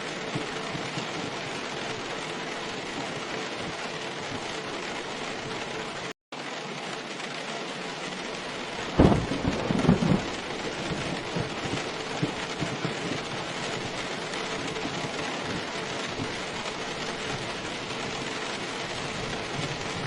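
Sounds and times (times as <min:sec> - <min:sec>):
heavy rain falling: 0:00.0 - 0:20.0
thunder clap: 0:08.4 - 0:20.0.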